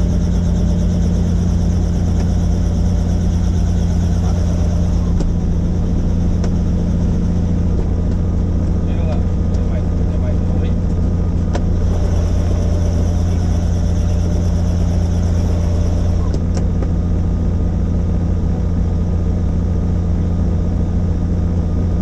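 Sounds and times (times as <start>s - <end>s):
high whine: 0.0s - 16.6s
helicopter rotor drone: 0.0s - 22.0s.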